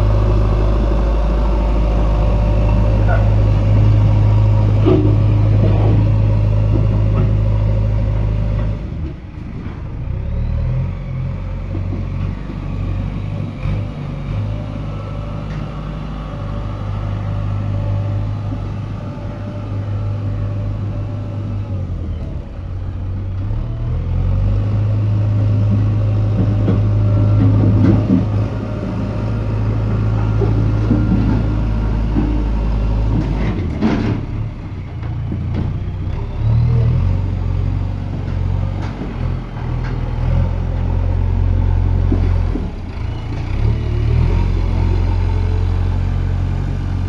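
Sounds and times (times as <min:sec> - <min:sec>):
diesel engine humming: 0:00.0 - 0:47.0.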